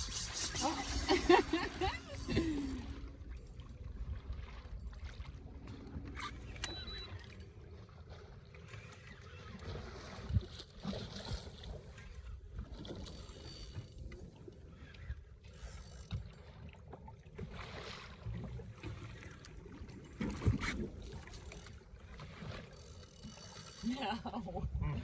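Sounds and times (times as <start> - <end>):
fishing reel clicking: 0.0 - 3.5, 13.0 - 16.4, 21.0 - 21.8, 22.7 - 24.1
rumble of water and wind: 0.0 - 25.0.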